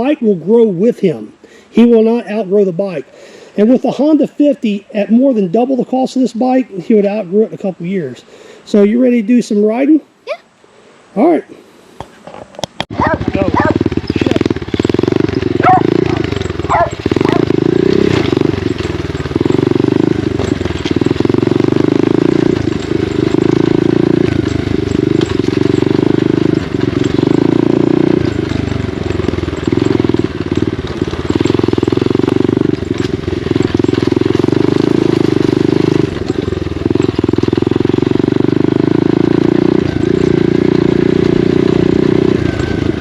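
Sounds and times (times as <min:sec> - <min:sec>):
dirt bike engine revving: 0:12.9 - 0:43.0.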